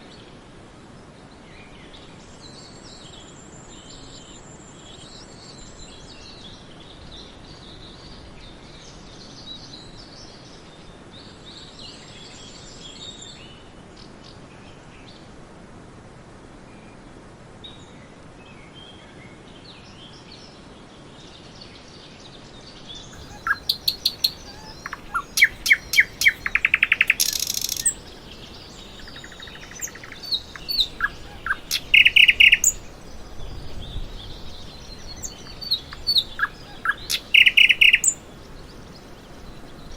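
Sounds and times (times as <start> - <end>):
small birds chirping: 23.2 - 39.9
steady hiss: 23.2 - 39.9.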